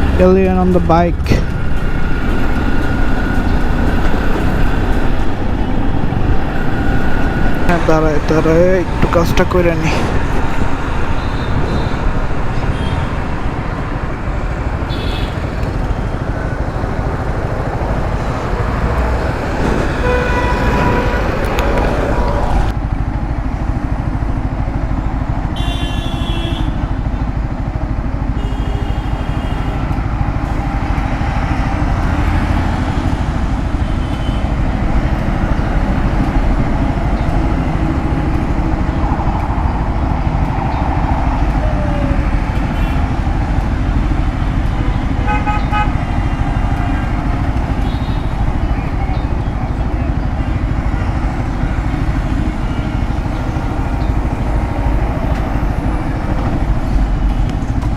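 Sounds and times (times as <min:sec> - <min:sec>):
vehicle horns: 0:10.6 - 0:13.5, 0:14.8 - 0:15.7, 0:18.8 - 0:22.5, 0:25.5 - 0:26.9, 0:28.3 - 0:30.9, 0:32.6 - 0:34.6, 0:42.6 - 0:43.2, 0:44.6 - 0:48.6.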